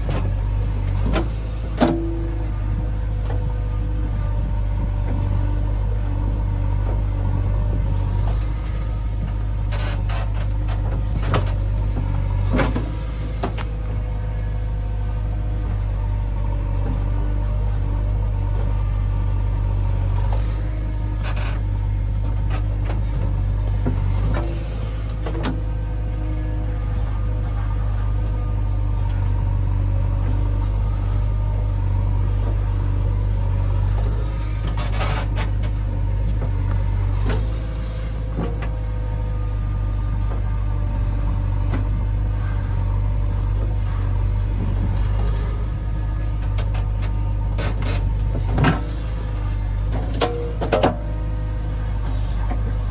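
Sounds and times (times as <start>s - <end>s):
heavy diesel engine droning: 0.0s - 52.9s.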